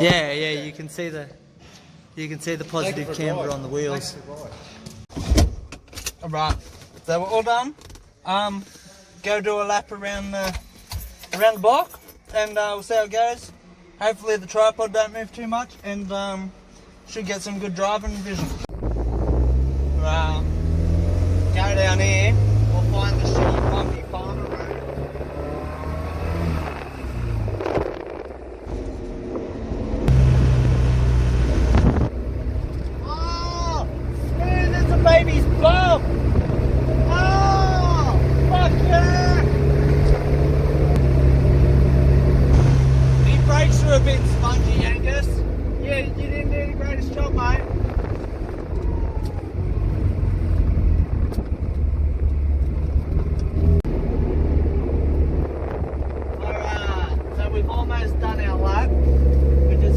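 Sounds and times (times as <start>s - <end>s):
car engine and tyre rumble: 12.0s - 59.9s
car engine running: 30.1s - 33.0s.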